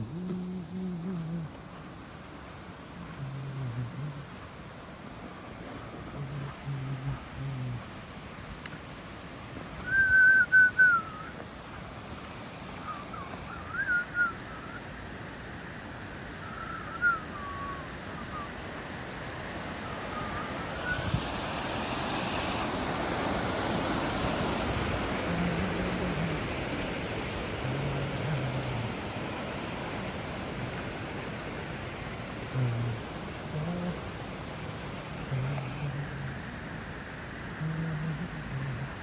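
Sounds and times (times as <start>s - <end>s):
warbling whistled calls: 9.8s - 11.4s, 12.6s - 15.4s, 16.3s - 18.8s, 19.8s - 21.3s, 24.8s - 26.9s.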